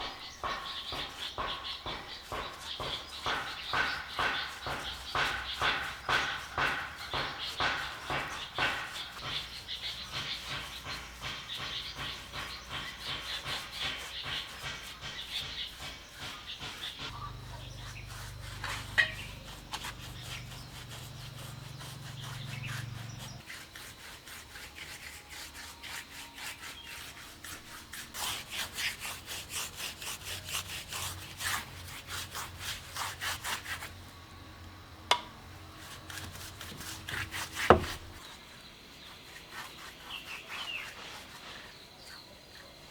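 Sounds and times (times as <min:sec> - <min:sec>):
sharp knocks: 0:00.0 - 0:17.4, 0:35.1 - 0:35.4, 0:37.6 - 0:38.2
rhythmic rubbing on wood: 0:00.0 - 0:34.3, 0:35.1 - 0:42.2.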